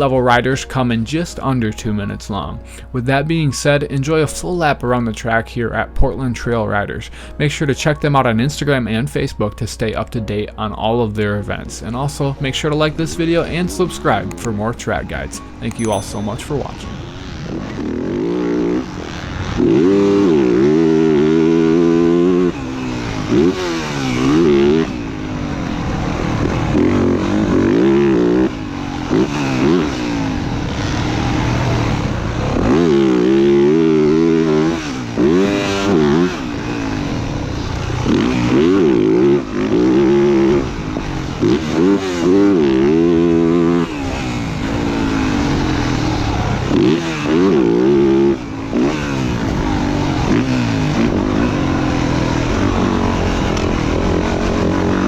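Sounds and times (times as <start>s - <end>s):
motocross bike engine accelerating: 11.8s - 55.0s.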